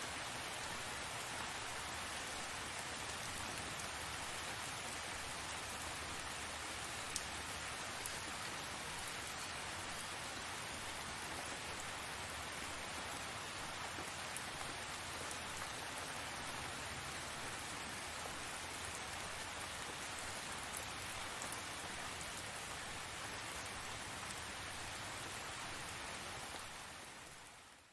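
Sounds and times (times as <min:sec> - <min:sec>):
rain falling: 0:00.0 - 0:27.9.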